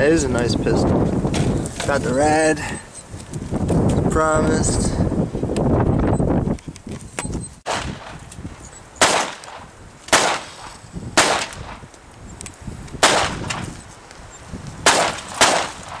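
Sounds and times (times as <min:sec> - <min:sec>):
pistol shots: 0:07.7 - 0:08.2, 0:09.0 - 0:11.8, 0:13.0 - 0:13.7, 0:14.8 - 0:16.0.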